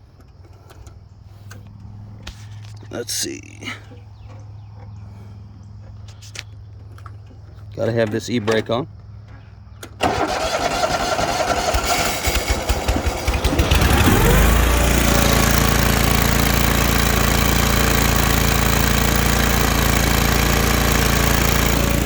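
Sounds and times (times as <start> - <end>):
engine starter cranking: 9.9 - 22.0
mower engine running: 10.0 - 22.0.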